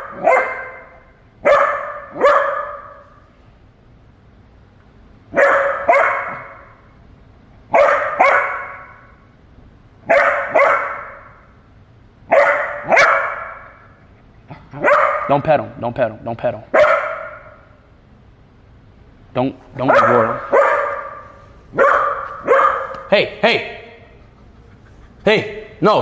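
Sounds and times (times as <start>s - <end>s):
puppy barking: 0.0s - 3.2s, 5.3s - 6.8s, 7.7s - 9.2s, 10.0s - 11.5s, 12.3s - 15.5s, 16.7s - 17.7s, 19.8s - 23.2s.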